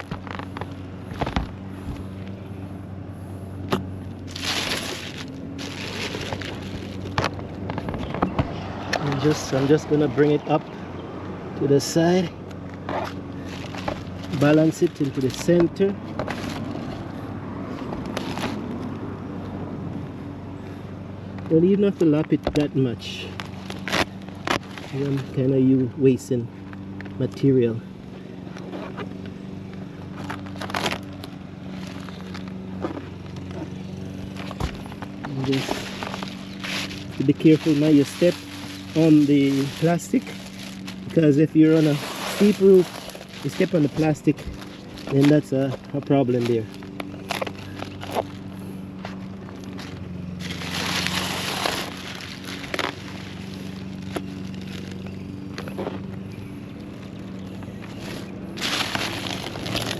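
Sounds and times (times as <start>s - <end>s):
low hum: 0.0s - 9.3s
low mechanical hum: 0.0s - 59.9s
roofing sheet crackling and rustling: 4.3s - 8.1s, 13.0s - 17.1s, 17.7s - 18.7s, 23.3s - 25.4s, 30.2s - 32.5s, 34.3s - 48.5s, 49.5s - 55.1s, 57.9s - 59.9s.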